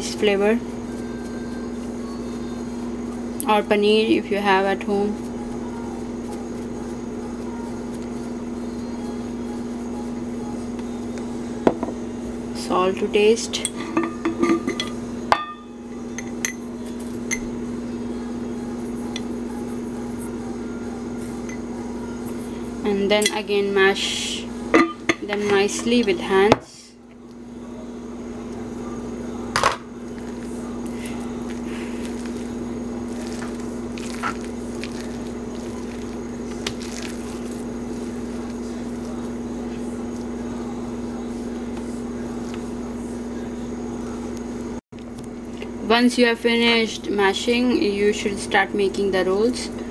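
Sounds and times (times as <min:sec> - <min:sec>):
steady low hum: 0:00.0 - 0:49.9
utensil clinking against bowl: 0:13.6 - 0:16.6
hands squishing mashed food: 0:30.2 - 0:39.4.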